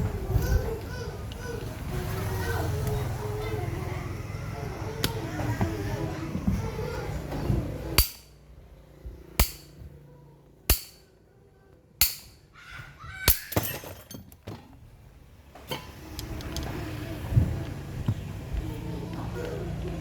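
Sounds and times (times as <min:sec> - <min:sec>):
hammer striking metal: 0:08.0 - 0:08.4, 0:09.4 - 0:09.8, 0:10.7 - 0:11.1, 0:12.0 - 0:12.5
metal parts clinking: 0:13.3 - 0:14.4.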